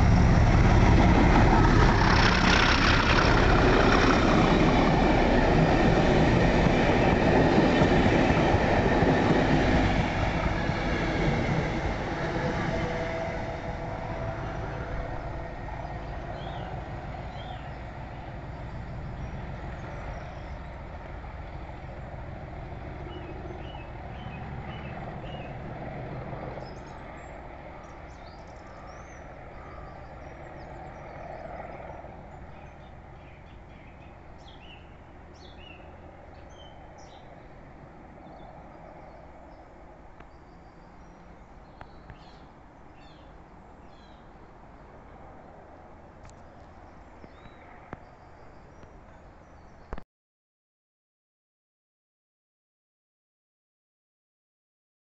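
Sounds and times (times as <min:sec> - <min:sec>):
train rumbling: 0:00.0 - 0:40.2
birds chirping: 0:15.2 - 0:20.9, 0:23.0 - 0:25.6.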